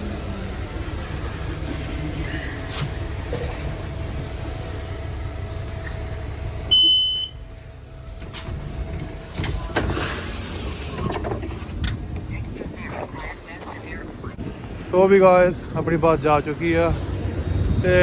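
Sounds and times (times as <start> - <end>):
bus engine rumbling: 0.0 - 18.0
loud high beep: 6.7 - 7.4.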